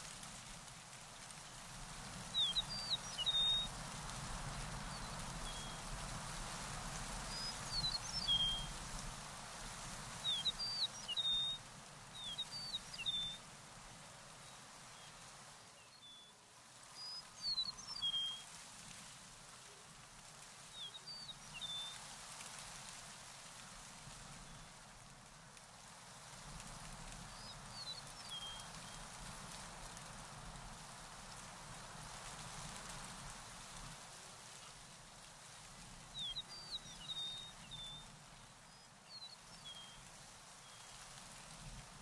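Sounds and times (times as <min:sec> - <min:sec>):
outdoor hiss: 0:00.0 - 0:42.0
songbird chirping: 0:02.2 - 0:03.9, 0:07.3 - 0:09.0, 0:10.1 - 0:13.4, 0:36.1 - 0:41.0.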